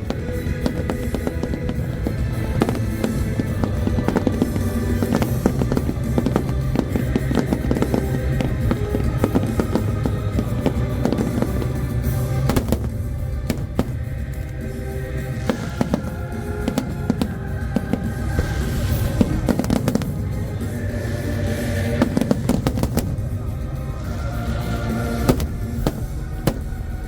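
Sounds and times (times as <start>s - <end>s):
fireworks bangs and crackles: 0.0s - 27.0s
music with low beat: 0.0s - 27.0s.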